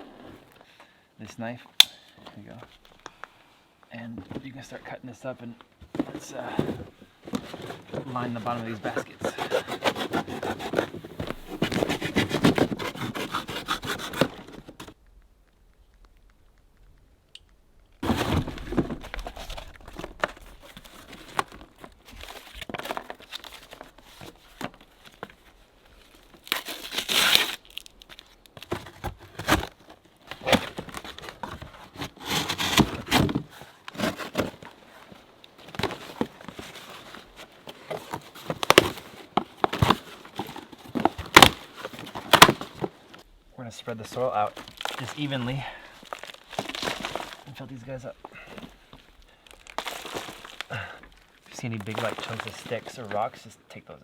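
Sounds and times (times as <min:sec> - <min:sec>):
cardboard tearing and crumpling: 0:07.3 - 0:15.0, 0:18.0 - 0:25.4, 0:26.0 - 0:43.0, 0:44.1 - 0:47.5, 0:49.4 - 0:53.2
knife cutting cardboard: 0:07.4 - 0:14.9, 0:26.5 - 0:27.6, 0:31.8 - 0:34.6.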